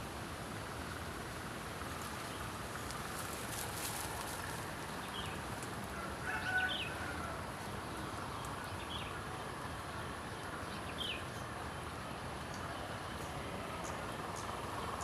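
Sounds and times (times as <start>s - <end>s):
steady background hiss: 0.0s - 15.0s
small songbird chirping: 3.5s - 5.5s, 6.6s - 15.0s.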